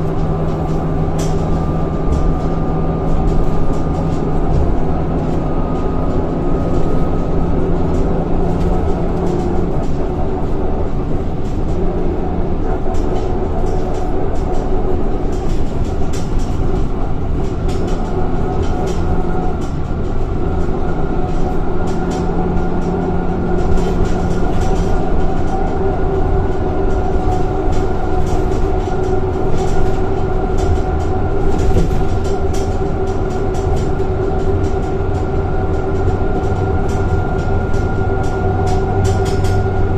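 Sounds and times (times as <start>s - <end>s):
bus diesel engine running: 0.0s - 39.9s
small clicks and rattles: 20.8s - 39.8s.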